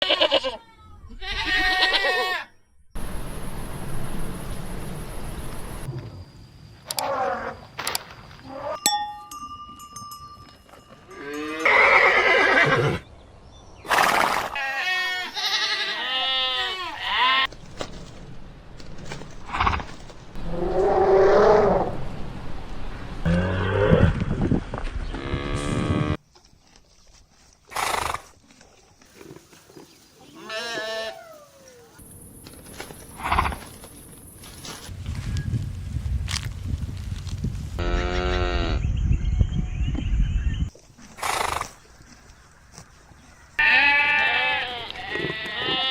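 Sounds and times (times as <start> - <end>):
goat bleating: 0.0 - 2.5, 14.6 - 17.5, 30.3 - 31.5, 43.6 - 45.9
horse neighing: 11.3 - 13.0, 13.9 - 17.5, 41.2 - 41.8.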